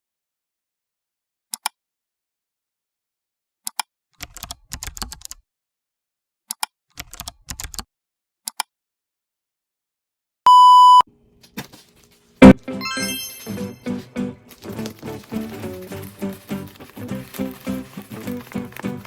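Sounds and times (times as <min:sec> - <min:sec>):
loud electronic beep: 0:10.5 - 0:11.0.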